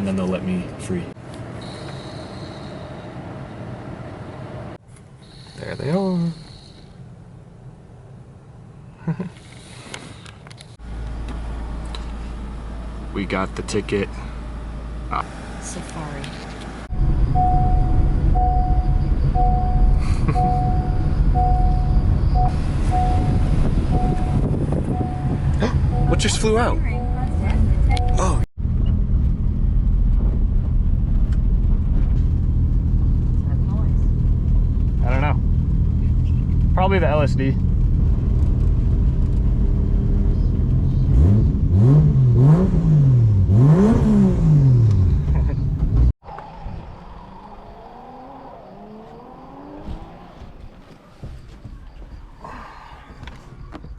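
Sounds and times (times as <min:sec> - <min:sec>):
car engine and road noise: 0:00.0 - 0:53.9
two-tone warning chime beeps: 0:17.4 - 0:28.4.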